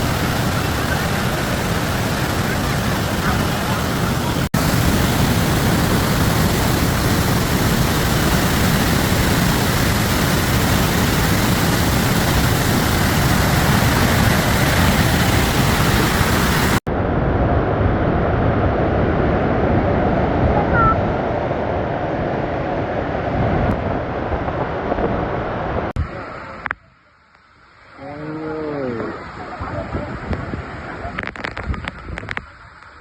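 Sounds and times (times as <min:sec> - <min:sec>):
waterfall rushing: 0:00.0 - 0:16.8, 0:27.6 - 0:33.0.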